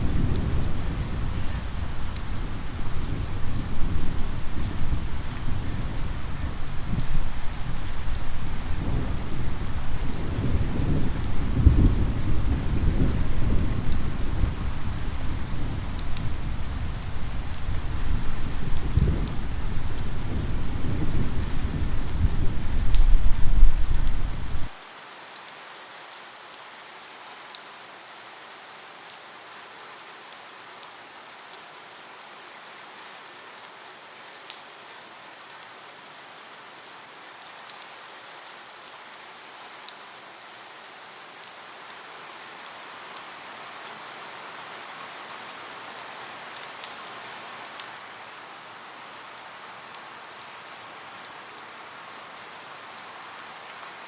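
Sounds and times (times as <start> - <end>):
low rolling thunder: 0.0 - 24.8
steady rain: 0.0 - 54.0.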